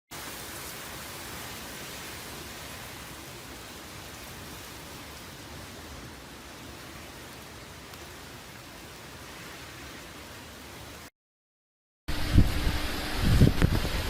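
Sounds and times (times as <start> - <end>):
heavy rain hissing: 0.1 - 11.1.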